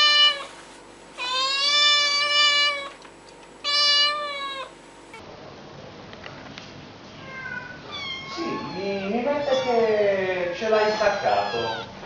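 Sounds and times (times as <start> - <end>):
cat meowing: 1.2 - 3.0, 3.6 - 4.7, 7.2 - 12.0.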